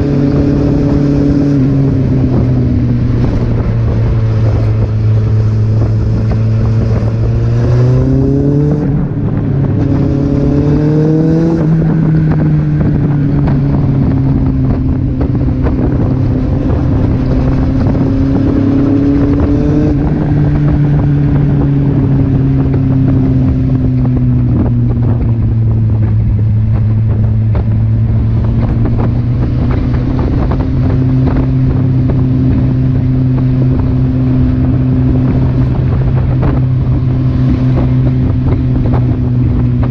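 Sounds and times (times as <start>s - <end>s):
motorcycle engine revving: 0.0s - 39.9s
wind rushing over microphone: 0.0s - 39.9s.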